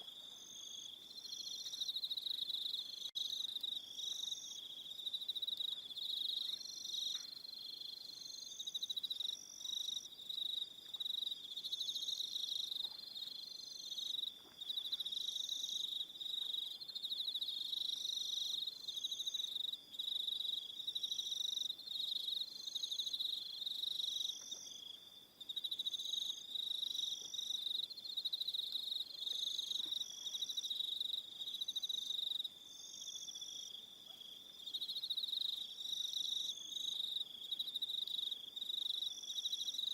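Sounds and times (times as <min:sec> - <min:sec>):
crickets trilling: 0:00.0 - 0:39.9
high cricket chirps: 0:00.0 - 0:39.9.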